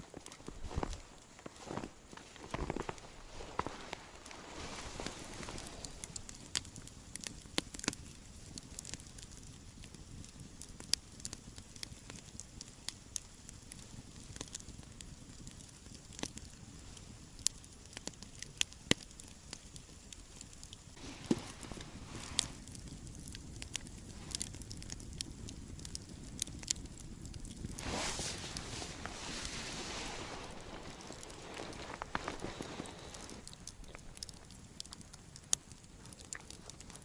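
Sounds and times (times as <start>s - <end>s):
low hiss: 0.0s - 18.0s, 18.6s - 37.0s
campfire crackling: 0.0s - 37.0s.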